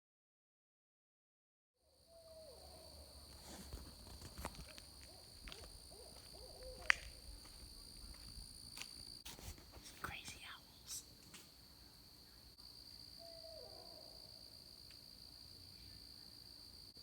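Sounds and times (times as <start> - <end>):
owl hooting: 2.1 - 7.4, 13.2 - 14.4.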